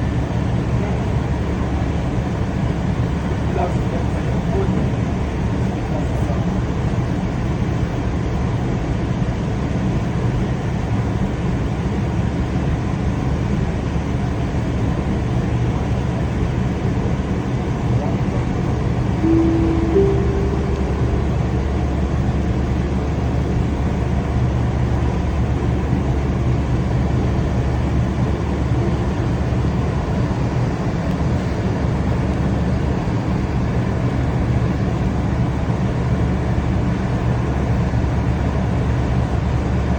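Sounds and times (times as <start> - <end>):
two-note rising tone: 19.2 - 22.5.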